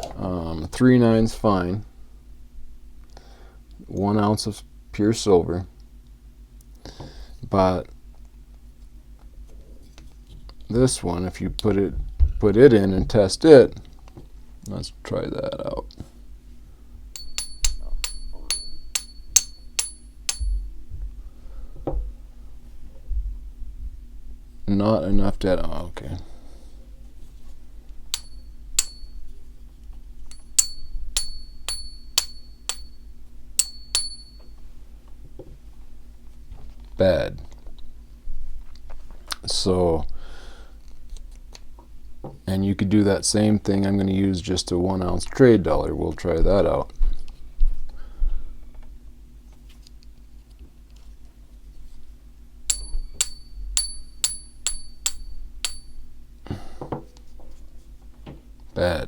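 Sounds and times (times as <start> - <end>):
coin tapped with clear ring: 17.2 - 20.6, 30.3 - 33.0, 33.6 - 34.5, 52.7 - 56.0.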